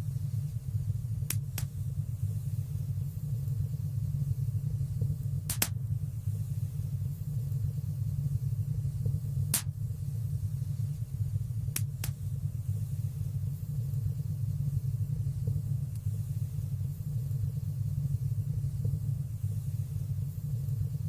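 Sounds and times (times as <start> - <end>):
fire rumbling in fireplace: 0.0 - 21.0
fire crackling pops: 1.1 - 2.0, 5.2 - 6.0, 9.5 - 9.9, 11.7 - 12.4.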